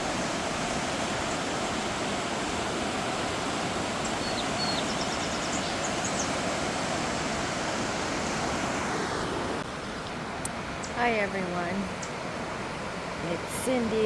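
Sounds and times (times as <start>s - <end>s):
faint bird chirps: 4.0s - 6.4s.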